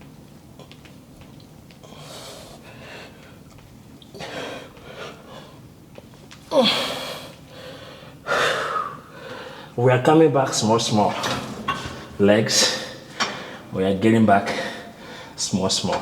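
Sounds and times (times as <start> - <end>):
man groaning: 6.5 - 7.0.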